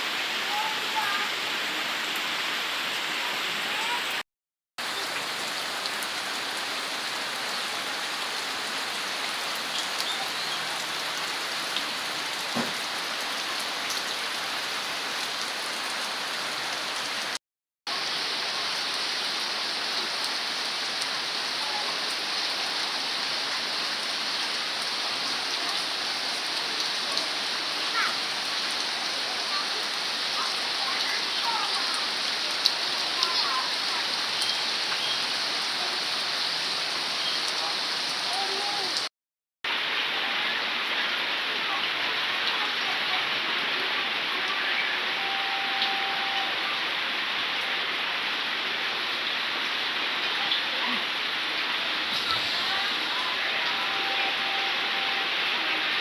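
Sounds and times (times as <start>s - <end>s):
heavy rain: 0.0s - 4.2s, 4.8s - 39.1s, 39.7s - 56.0s
raindrop ticks: 9.6s - 10.8s.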